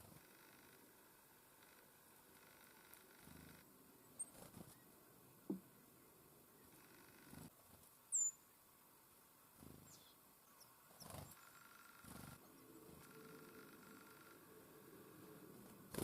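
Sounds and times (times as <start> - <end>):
short bird chirps: 8.1 - 8.4
songbird calling: 8.1 - 8.6, 9.7 - 14.8.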